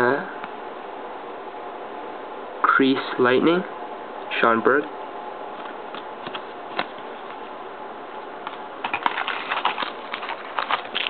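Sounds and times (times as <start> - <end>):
trading cards clicking: 5.6 - 7.4, 8.4 - 11.0
foil wrapper crinkling: 8.8 - 11.0.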